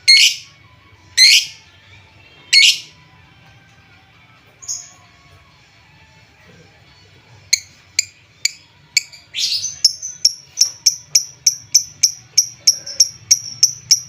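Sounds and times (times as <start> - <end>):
bird high chirps: 0.0 - 0.5, 1.2 - 1.6, 2.5 - 2.9.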